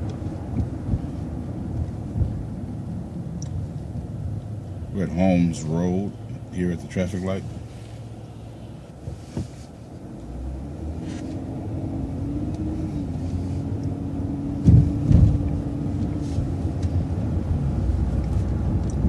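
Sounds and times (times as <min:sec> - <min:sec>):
bus engine running: 0:00.0 - 0:19.0
heavy thumps: 0:14.6 - 0:15.4.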